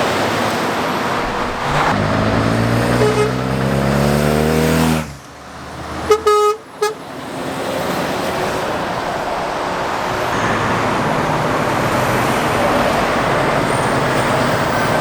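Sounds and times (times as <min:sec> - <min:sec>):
tyre and road noise: 0:00.0 - 0:15.0
vehicle engine: 0:00.0 - 0:15.0
vehicle horn toots: 0:01.3 - 0:05.3, 0:06.0 - 0:07.1.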